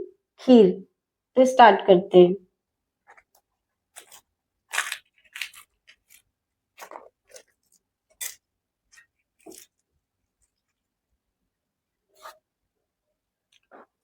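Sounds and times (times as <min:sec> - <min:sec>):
crunching and biting food: 0:03.0 - 0:09.9.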